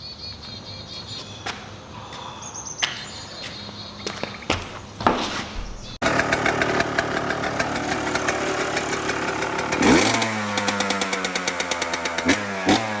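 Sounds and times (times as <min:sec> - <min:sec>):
two-stroke motorcycle engine revving: 0:05.9 - 0:13.0.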